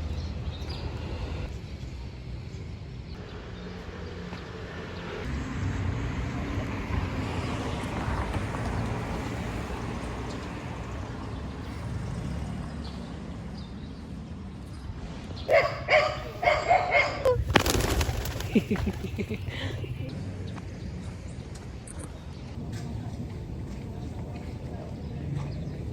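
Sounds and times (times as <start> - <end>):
dog barking: 15.5 - 17.4.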